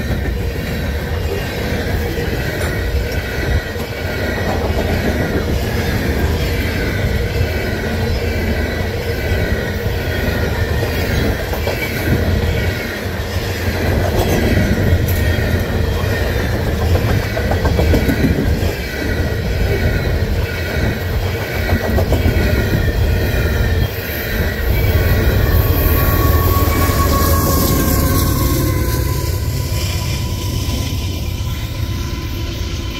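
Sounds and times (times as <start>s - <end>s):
diesel locomotive whine: 0.0s - 32.9s
freight train wheels rumbling: 0.0s - 32.9s
high wheel squeal: 14.5s - 32.9s.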